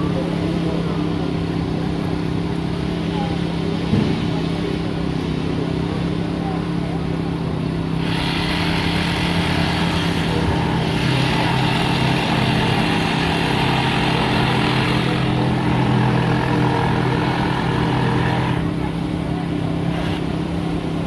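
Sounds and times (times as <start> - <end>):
engine idling: 0.0 - 21.0
battery saw rasping through glass: 8.0 - 18.9.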